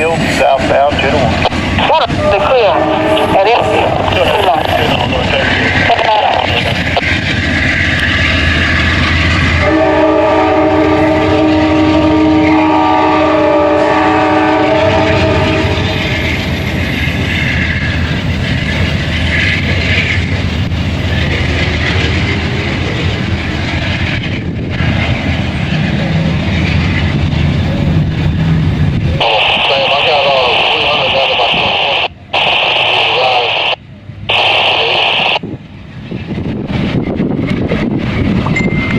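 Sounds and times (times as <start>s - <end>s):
passenger train rumbling past: 0.0s - 38.9s
train air horn chord: 9.6s - 16.0s.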